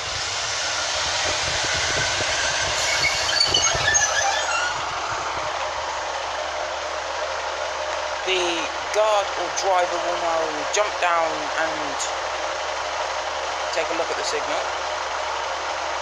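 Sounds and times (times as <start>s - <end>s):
train rumbling: 0.0s - 16.0s
short high squeals: 2.4s - 5.4s.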